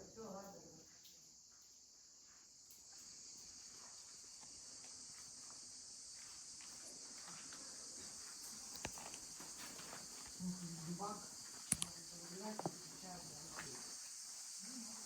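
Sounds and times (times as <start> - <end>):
high-pitched insect chorus: 0.0 - 15.0
sharp click: 11.6 - 12.0.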